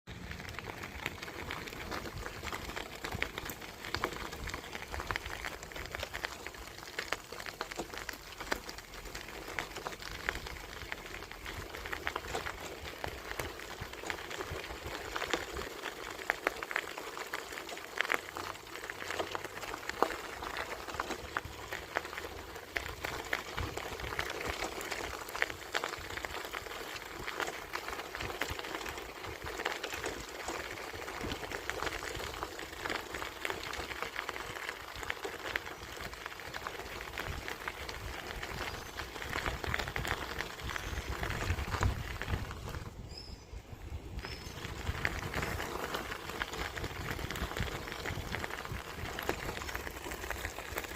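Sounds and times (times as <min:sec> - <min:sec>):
bicycle tyre crackling: 0:00.1 - 0:50.9
small clicks and rattles: 0:00.2 - 0:42.8.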